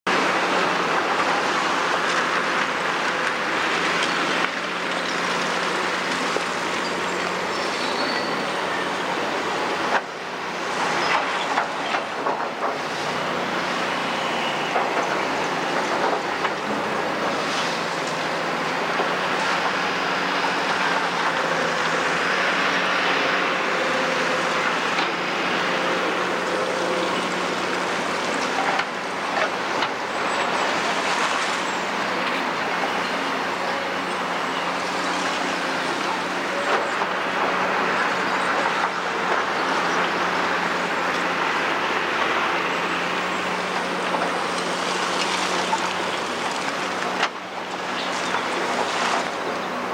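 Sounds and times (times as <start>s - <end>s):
hydraulic excavator running: 0.1s - 49.9s.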